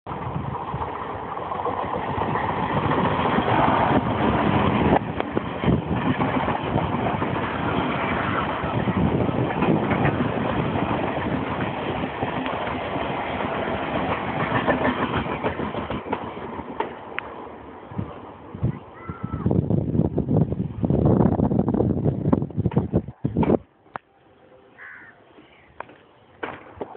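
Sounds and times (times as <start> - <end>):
train wheels clattering on rails: 0.1 - 18.1.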